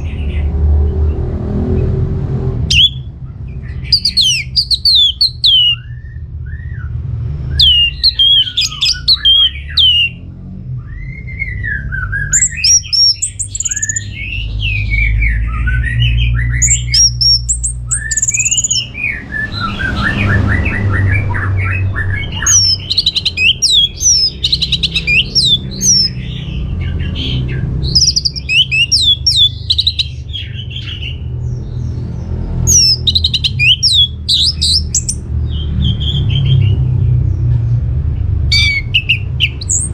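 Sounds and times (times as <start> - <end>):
thrush singing: 2.7 - 3.1, 3.7 - 5.8, 7.5 - 10.2, 12.2 - 31.2, 32.7 - 35.2, 38.5 - 39.9.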